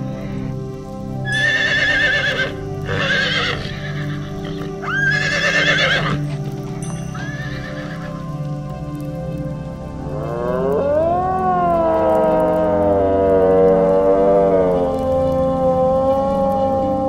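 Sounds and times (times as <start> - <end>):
background music: 0.0 - 17.0
horse neighing: 1.3 - 6.4, 7.2 - 8.1.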